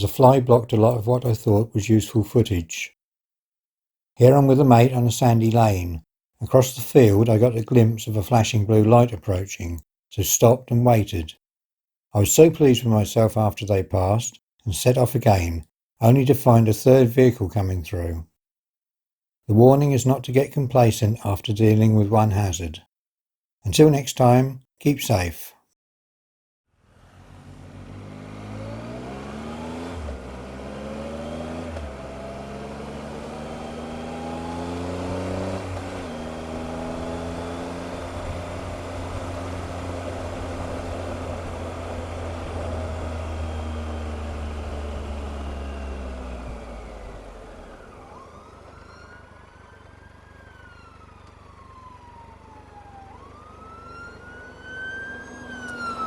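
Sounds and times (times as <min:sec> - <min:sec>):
motorcycle engine accelerating: 0:26.8 - 0:56.0
emergency siren wailing: 0:28.4 - 0:39.3, 0:40.2 - 0:56.0.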